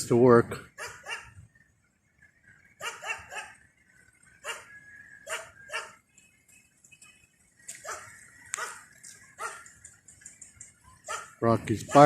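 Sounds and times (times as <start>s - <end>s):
dog barking: 0.8s - 1.4s, 2.8s - 3.6s, 4.4s - 6.0s, 7.8s - 8.8s, 9.4s - 9.7s, 11.0s - 12.0s.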